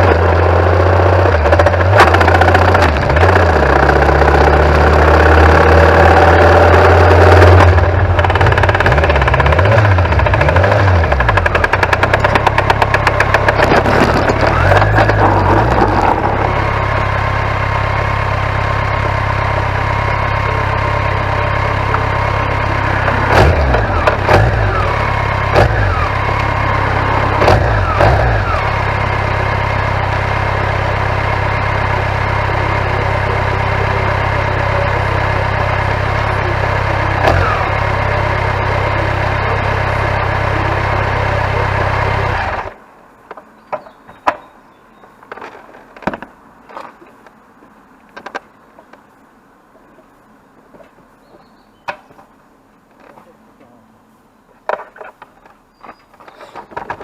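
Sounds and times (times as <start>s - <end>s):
motorcycle engine idling: 0.0s - 42.8s
fast rattle: 8.1s - 17.0s.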